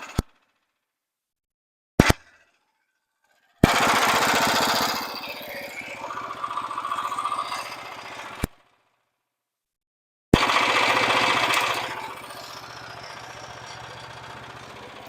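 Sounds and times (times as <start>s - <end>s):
small gas engine running: 3.6s - 8.5s, 10.4s - 15.0s
steady whine: 10.4s - 15.0s.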